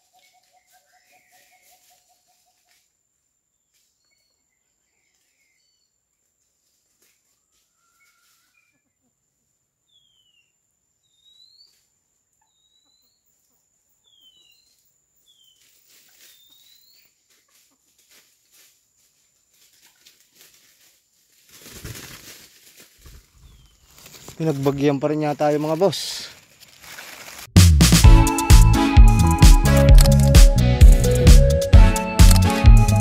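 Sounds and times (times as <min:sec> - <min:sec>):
soft rustles: 0:17.2 - 0:24.8, 0:25.4 - 0:27.5.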